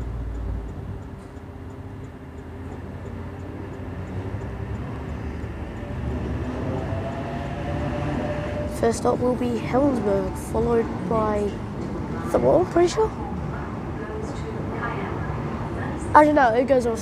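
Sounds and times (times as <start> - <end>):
electric train rumble and hum: 0.0 - 17.0
rising whine: 2.9 - 11.2.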